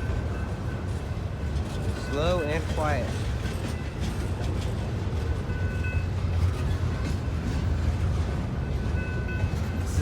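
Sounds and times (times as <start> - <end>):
freight train rumbling on rails: 0.0 - 10.0.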